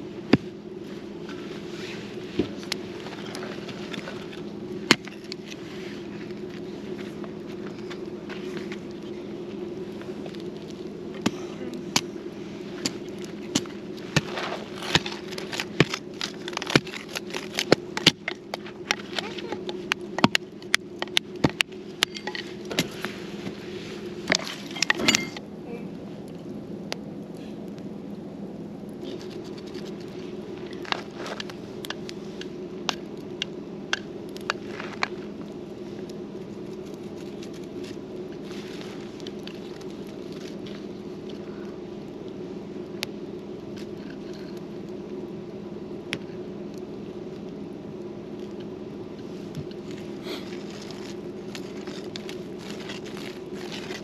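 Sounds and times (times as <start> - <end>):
campfire crackling and popping: 0.0 - 54.0
steady low hum: 0.0 - 54.0.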